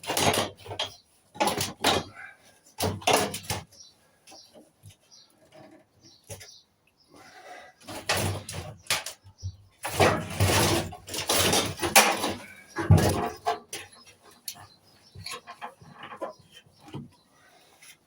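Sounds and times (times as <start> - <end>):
metal parts clattering and scraping: 0.0 - 3.7, 7.8 - 9.2, 9.8 - 17.1.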